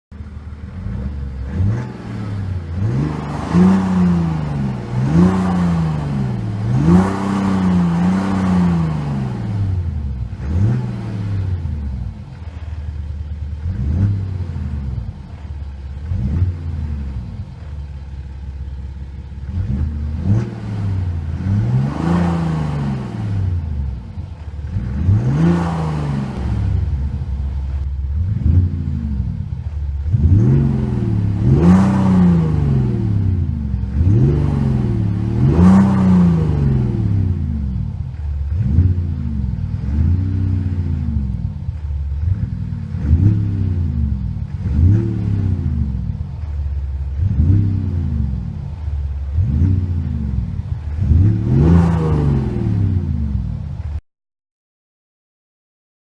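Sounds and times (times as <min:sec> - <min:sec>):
diesel engine revving: 0:00.1 - 0:54.0
engine idling: 0:00.1 - 0:54.0.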